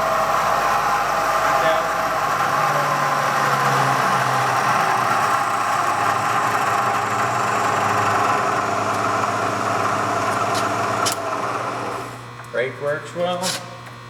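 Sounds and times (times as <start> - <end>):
milling machine humming and whining: 0.0 - 12.4.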